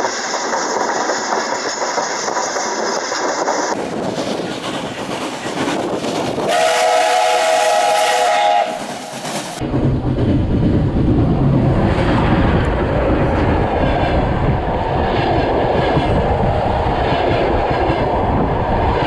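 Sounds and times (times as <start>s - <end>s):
train passing rumble: 0.0s - 19.0s
trains running on track: 0.0s - 19.0s
train whistle: 6.5s - 9.2s.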